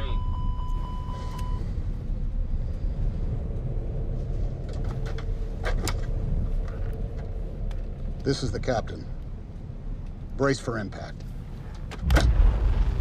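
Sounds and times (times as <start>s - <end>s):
warning tone: 0.0s - 1.7s
low cockpit rumble: 0.0s - 13.0s.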